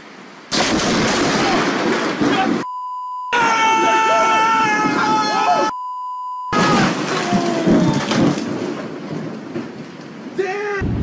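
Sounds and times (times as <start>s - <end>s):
high censor bleep: 2.6s - 3.4s, 5.7s - 6.6s.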